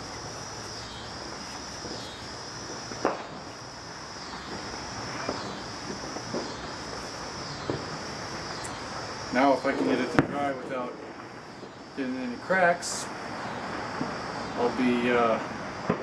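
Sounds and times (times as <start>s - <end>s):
insect chirring trill: 0.0s - 16.0s.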